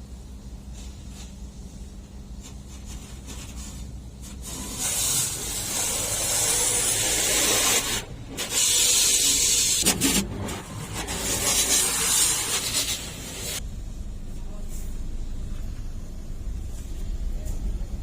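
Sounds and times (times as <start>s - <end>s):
low machinery hum: 0.0s - 18.0s
high-pressure water jet spraying: 4.2s - 13.6s.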